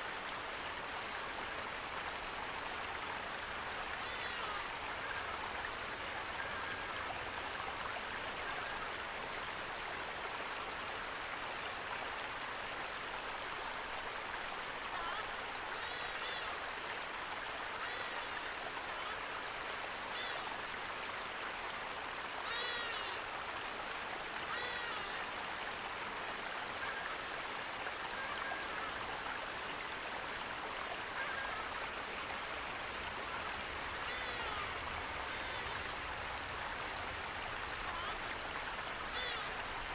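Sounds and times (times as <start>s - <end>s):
running water: 0.0s - 39.9s
short bird calls: 39.1s - 39.7s.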